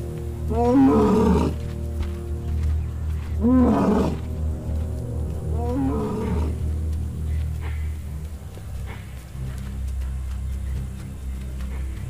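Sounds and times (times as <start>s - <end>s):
low music drone: 0.0s - 12.0s
lion roaring: 0.5s - 1.6s, 3.4s - 4.3s, 5.5s - 6.6s.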